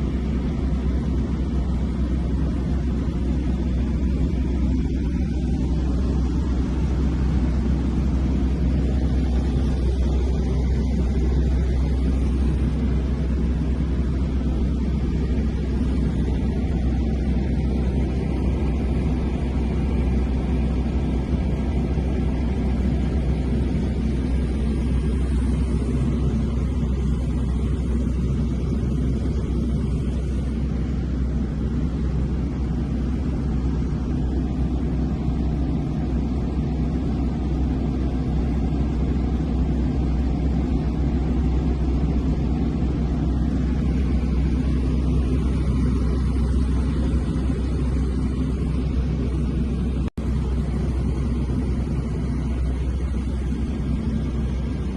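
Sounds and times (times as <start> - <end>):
propeller airplane engine drone: 0.0 - 54.9.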